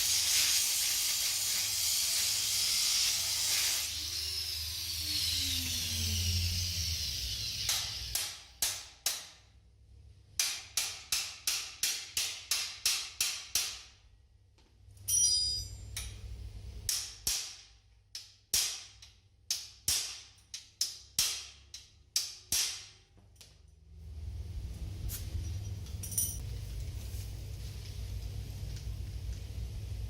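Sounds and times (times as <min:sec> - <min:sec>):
metal clang ringing: 0:15.0 - 0:16.2.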